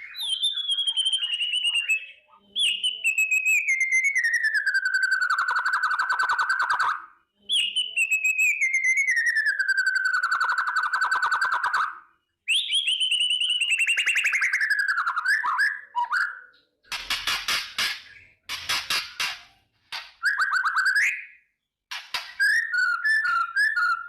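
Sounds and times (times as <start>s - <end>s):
harsh bird rattle: 16.9s - 20.3s, 21.9s - 22.6s.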